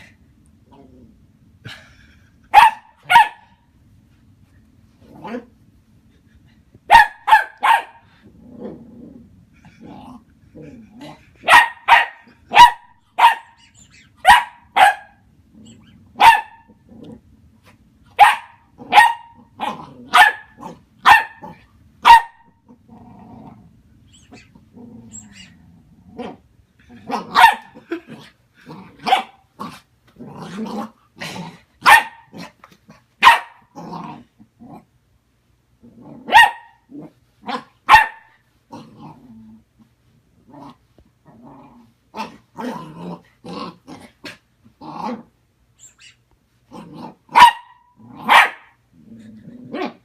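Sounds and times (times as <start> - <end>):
puppy growling: 0.0 - 2.0, 5.0 - 5.6, 8.1 - 11.5, 15.5 - 17.8, 18.8 - 21.7, 22.6 - 33.0, 33.7 - 35.0, 35.8 - 37.7, 38.7 - 45.4, 46.7 - 50.0
puppy barking: 2.5 - 3.6, 6.9 - 8.0, 11.4 - 13.6, 14.2 - 15.2, 16.2 - 16.7, 18.2 - 22.5, 27.1 - 27.8, 29.0 - 29.4, 31.8 - 32.4, 33.2 - 33.7, 36.3 - 36.9, 37.5 - 38.4, 47.3 - 48.8.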